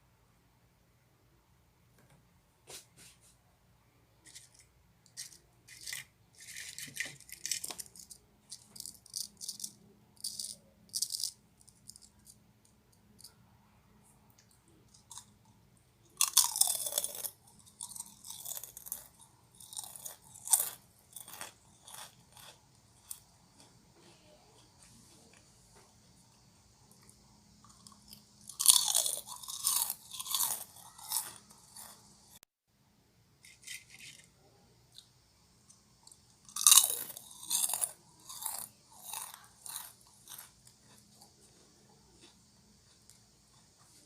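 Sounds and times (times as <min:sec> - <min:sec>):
snack bag crinkling: 0:04.3 - 0:12.0.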